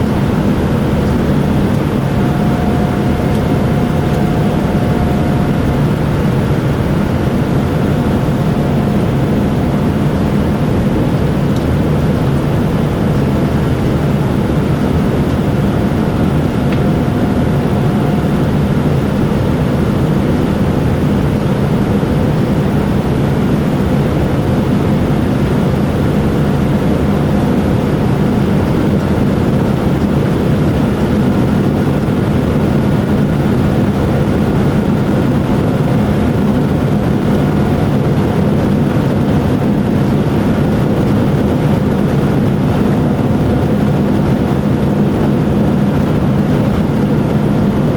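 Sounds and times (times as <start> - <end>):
faint steady tones: 0.0 - 20.9
aircraft cabin engine rush: 0.0 - 47.9
low hum: 0.0 - 47.9.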